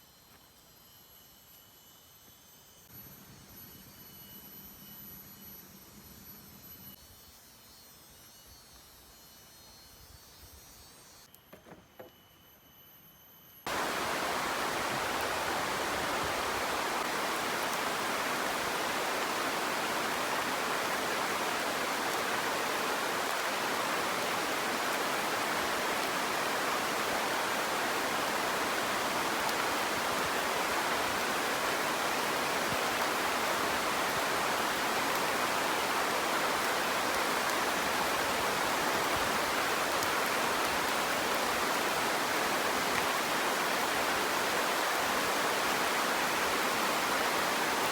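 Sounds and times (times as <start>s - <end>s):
heavy rain falling: 13.7s - 47.9s.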